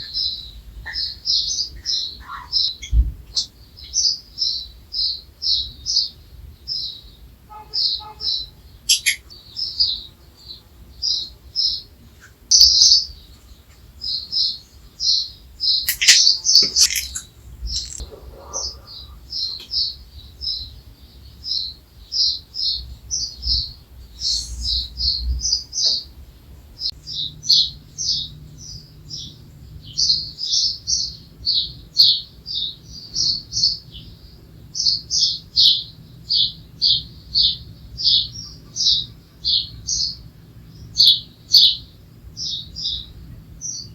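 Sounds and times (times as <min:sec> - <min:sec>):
birds chirping: 0:00.0 - 0:43.9
sharp clicks: 0:15.9 - 0:18.0.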